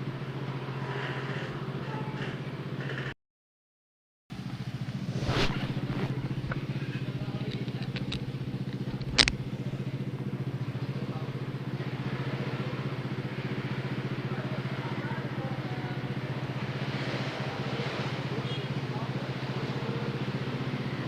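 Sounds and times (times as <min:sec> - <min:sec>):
motorcycle engine running: 0:00.0 - 0:03.2, 0:04.3 - 0:21.0
wind noise on microphone: 0:05.1 - 0:08.2.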